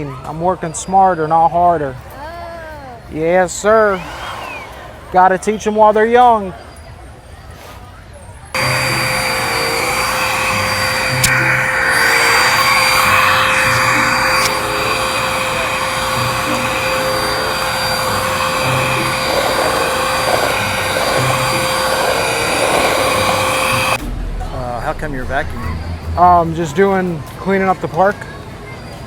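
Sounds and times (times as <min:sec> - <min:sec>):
vacuum cleaner running: 0:08.6 - 0:24.0.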